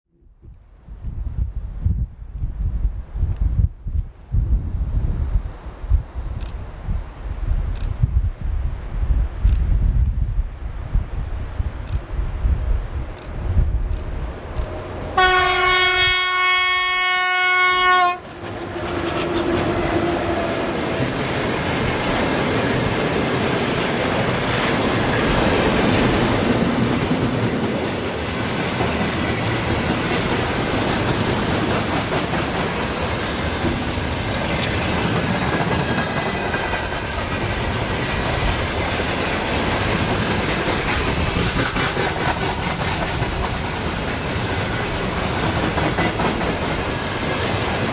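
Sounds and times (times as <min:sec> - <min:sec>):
freight train wheels rolling: 0:12.9 - 0:47.9
locomotive horn blast: 0:14.8 - 0:20.9.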